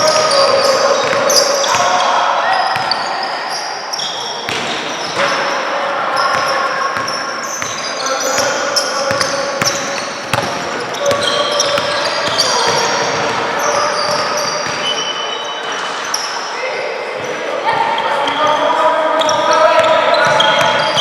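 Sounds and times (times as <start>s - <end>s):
people calling out: 0.0s - 21.0s
sneaker squeaks: 0.0s - 21.0s
basketball bouncing on court: 2.6s - 3.1s, 4.4s - 5.5s, 6.2s - 15.0s.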